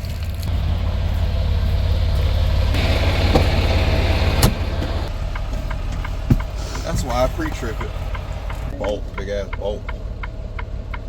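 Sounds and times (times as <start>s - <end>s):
diesel truck engine idling: 0.0s - 11.0s
sharp knocks: 3.2s - 3.8s, 4.4s - 8.7s
rushing hiss: 6.4s - 7.7s.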